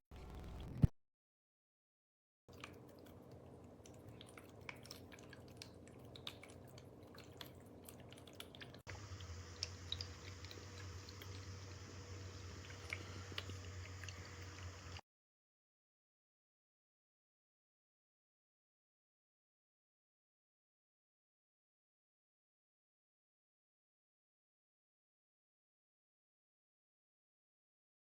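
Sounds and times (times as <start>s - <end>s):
faint pump hum: 2.5s - 15.0s
water dripping and trickling: 2.5s - 15.0s.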